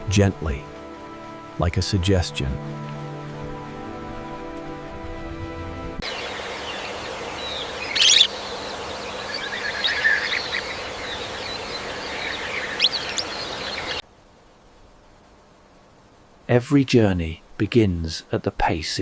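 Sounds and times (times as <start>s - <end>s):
background music: 0.0s - 6.1s
outdoor ambience hiss: 0.0s - 19.0s
birds chirping and calling: 6.0s - 14.0s.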